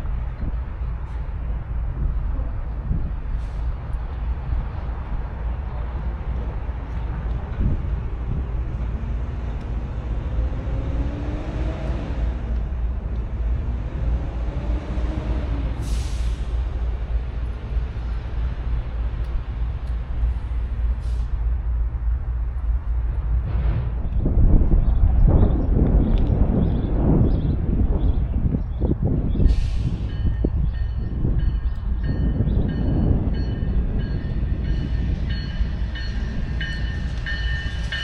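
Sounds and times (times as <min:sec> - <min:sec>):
train rumbling past: 0:00.0 - 0:38.0
air brakes hiss: 0:15.8 - 0:16.6, 0:21.0 - 0:21.4, 0:29.4 - 0:30.2.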